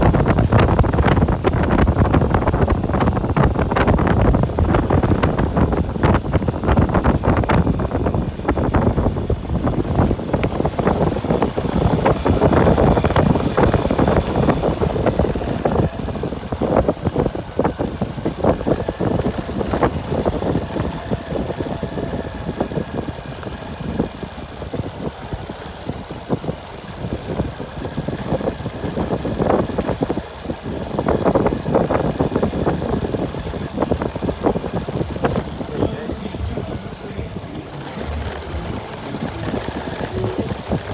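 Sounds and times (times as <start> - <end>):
vehicle engine running: 0.0 - 40.9
wind on microphone: 0.0 - 40.9
knocks and rattles from bumps: 24.7 - 40.9.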